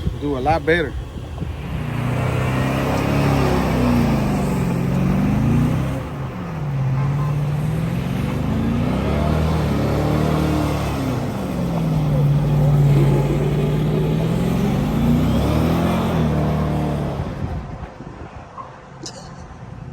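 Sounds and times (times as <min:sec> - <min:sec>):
van engine revving: 0:00.0 - 0:17.8.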